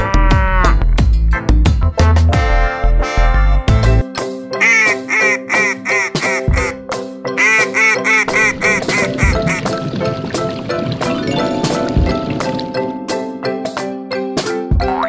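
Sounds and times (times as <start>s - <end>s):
background music: 0.0s - 15.0s
duck quacking: 4.6s - 6.8s, 7.4s - 9.8s.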